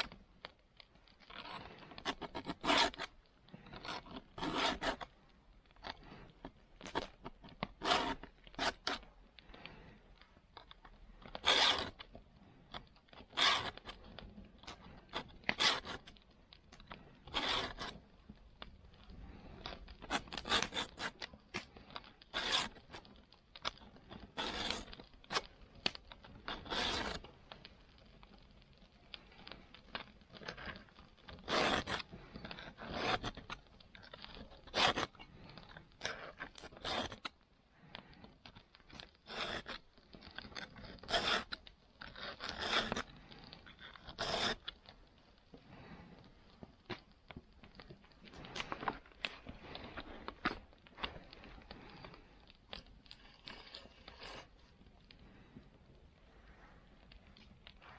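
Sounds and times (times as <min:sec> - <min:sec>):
file scraping saw teeth: 0:01.4 - 0:03.1, 0:03.8 - 0:05.0, 0:07.8 - 0:09.0, 0:11.4 - 0:12.0, 0:13.3 - 0:14.0, 0:15.1 - 0:16.0, 0:17.3 - 0:18.0, 0:20.1 - 0:21.2, 0:22.3 - 0:23.0, 0:24.4 - 0:25.5, 0:26.5 - 0:27.2, 0:31.3 - 0:33.4, 0:34.6 - 0:35.1, 0:36.0 - 0:37.2, 0:39.3 - 0:39.8, 0:40.8 - 0:41.5, 0:42.2 - 0:43.0, 0:44.0 - 0:44.6.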